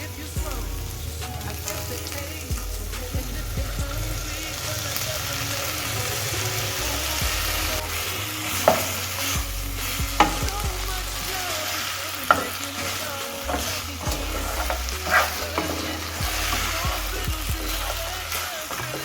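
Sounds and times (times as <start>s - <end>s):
utensil knocking against pan: 8.6s - 9.0s, 10.2s - 10.7s, 12.3s - 16.7s
meat sizzling in a pan: 11.4s - 19.0s.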